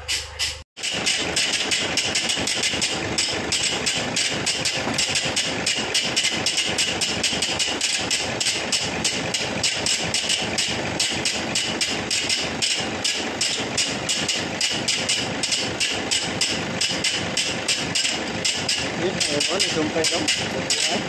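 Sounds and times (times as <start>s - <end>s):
engine knocking clatter: 0.8s - 21.0s.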